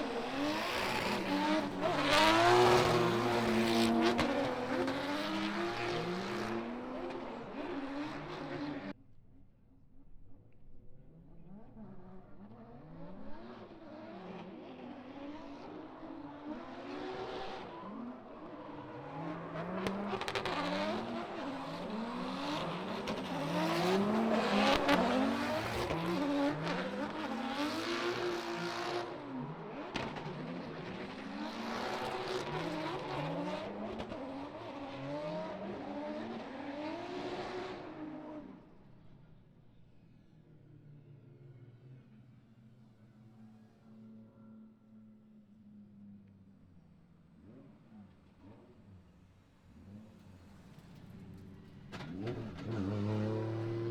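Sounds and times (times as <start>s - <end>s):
car engine revving: 0.0s - 8.9s, 18.2s - 38.3s, 47.4s - 53.9s.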